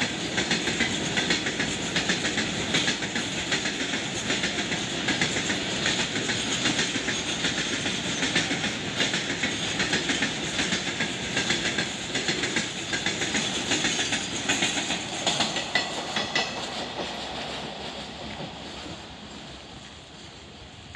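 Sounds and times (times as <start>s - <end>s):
train wheels clicking over rail joints: 0.0s - 20.5s.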